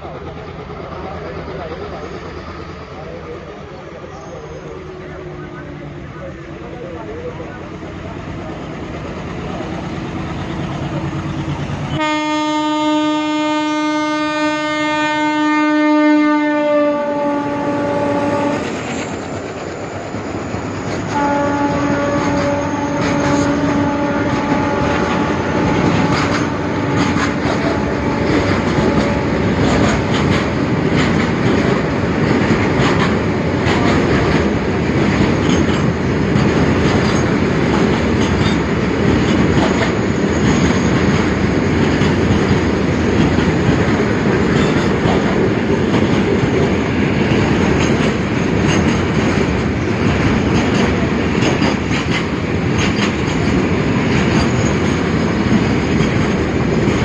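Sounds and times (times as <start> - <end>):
goods train rumbling past: 0.0 - 57.0
train horn: 11.9 - 18.7, 21.1 - 29.7.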